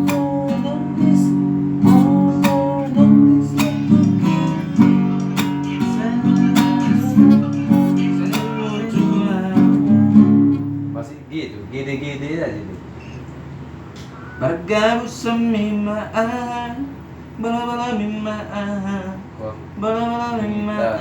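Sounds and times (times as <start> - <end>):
acoustic guitar strumming: 0.0 - 11.2.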